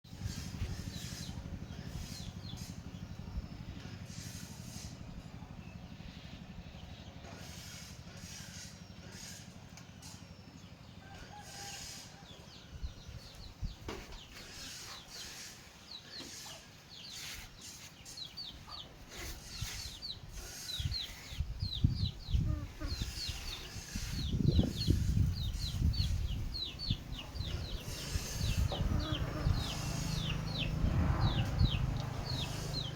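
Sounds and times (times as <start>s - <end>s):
chicks peeping: 0.1s - 4.9s, 11.1s - 32.9s
low rumbling and thumping: 21.3s - 32.9s.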